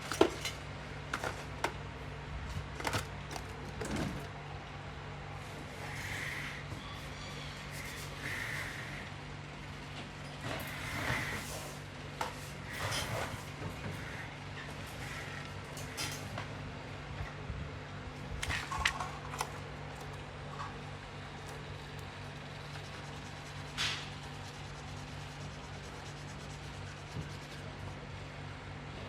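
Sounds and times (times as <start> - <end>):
steady low hum: 11.8 - 29.0
scraping strokes on clock part: 21.4 - 28.0.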